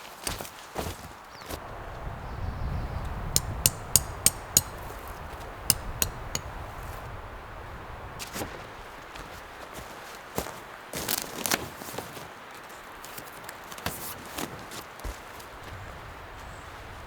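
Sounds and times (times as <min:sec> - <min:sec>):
sharp metallic clinks: 0:03.3 - 0:05.1.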